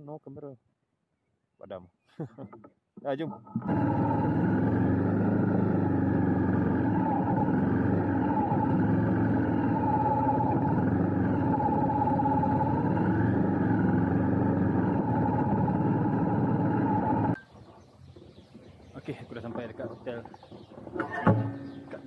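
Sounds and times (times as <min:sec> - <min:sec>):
motorcycle engine running: 0:03.5 - 0:17.4.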